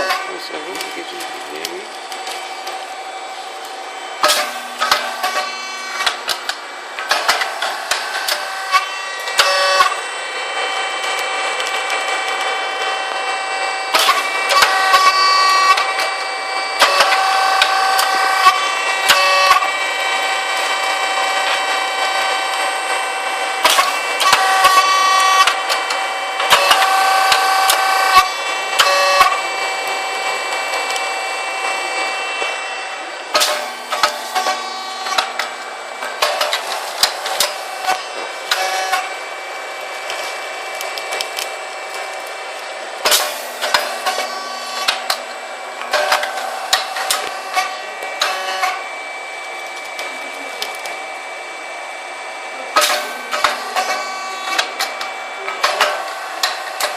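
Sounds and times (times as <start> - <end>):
high-pitched machine whine: 0.0 - 56.9.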